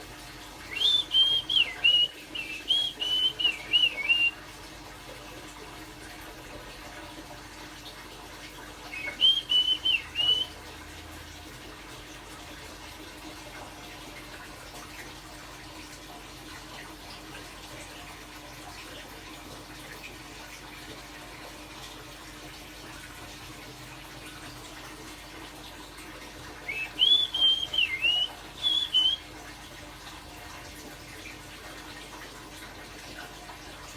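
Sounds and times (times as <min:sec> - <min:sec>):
person whistling bird song: 0:00.7 - 0:04.4, 0:08.9 - 0:10.5, 0:26.7 - 0:29.3.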